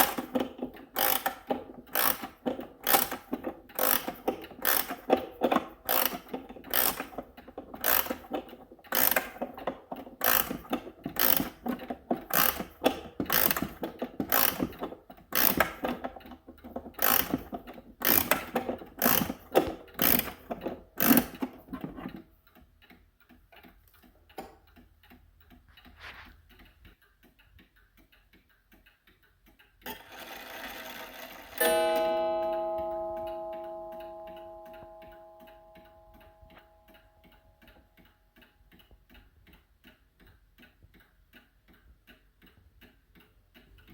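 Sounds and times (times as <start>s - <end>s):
clock ticking: 0.0s - 43.9s
clock strike ringing: 29.9s - 37.1s.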